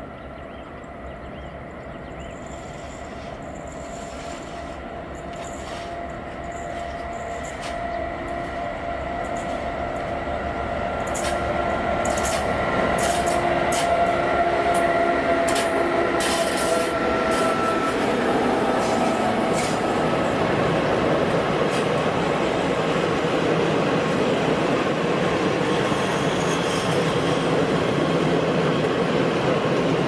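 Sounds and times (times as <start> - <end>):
train running past: 0.0 - 30.0
wheels clicking on track: 10.9 - 23.5.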